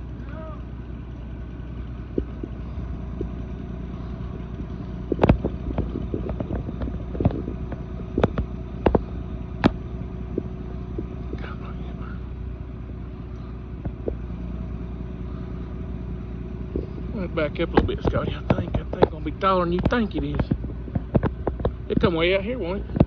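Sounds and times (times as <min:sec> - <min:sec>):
vehicle engine running: 0:00.0 - 0:23.0
sharp cracks and snaps: 0:05.0 - 0:11.5.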